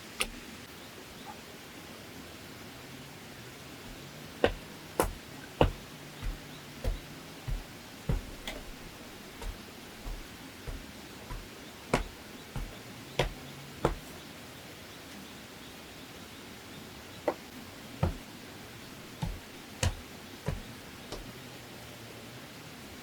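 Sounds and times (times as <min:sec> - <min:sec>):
hand tool knocking on bamboo: 0:03.9 - 0:14.1, 0:19.2 - 0:21.3.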